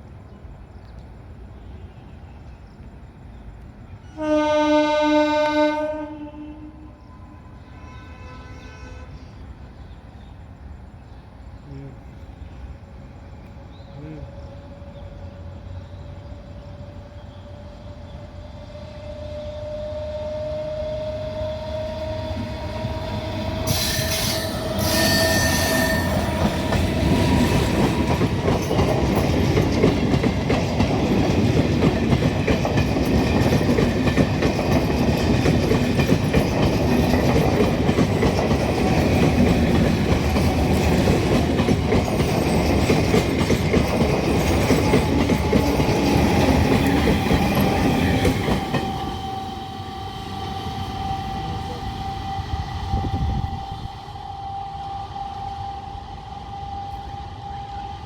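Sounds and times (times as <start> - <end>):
train wheels rumbling: 2.8 - 58.0
train motor whine: 18.5 - 31.1, 38.8 - 58.0
clickety-clack over rail joints: 24.6 - 49.3.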